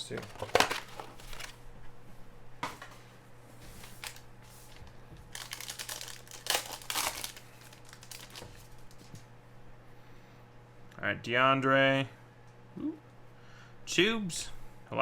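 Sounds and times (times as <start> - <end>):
plastic wrapper tearing and crinkling: 0.2 - 1.6, 3.9 - 4.2, 5.2 - 9.2.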